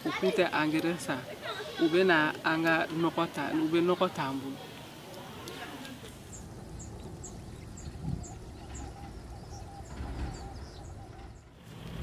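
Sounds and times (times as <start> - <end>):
bird chirping: 6.2 - 11.6.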